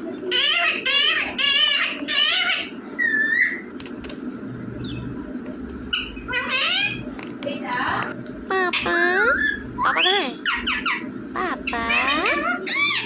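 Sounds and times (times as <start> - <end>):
parrot squawking: 0.3 - 3.7, 5.9 - 7.1, 8.5 - 13.0
sharp clicks: 3.8 - 4.2.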